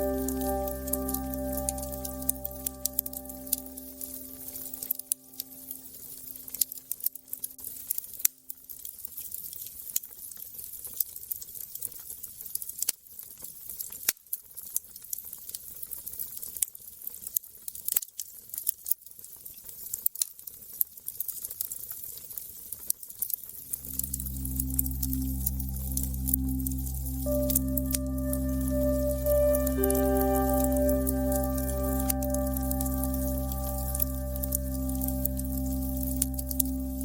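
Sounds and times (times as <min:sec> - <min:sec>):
held musical notes: 0:00.0 - 0:06.6, 0:23.6 - 0:37.0.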